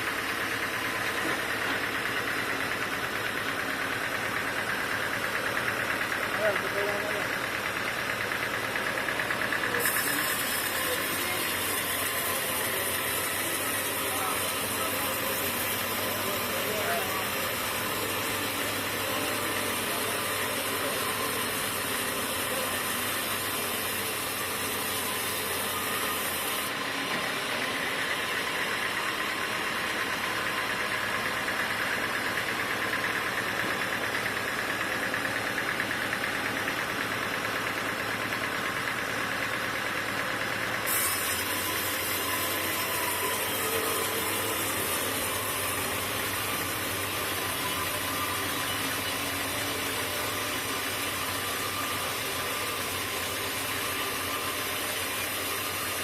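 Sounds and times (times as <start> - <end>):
mid-pitched machine whine: 0.0 - 56.0
sawmill machinery running: 0.0 - 56.0.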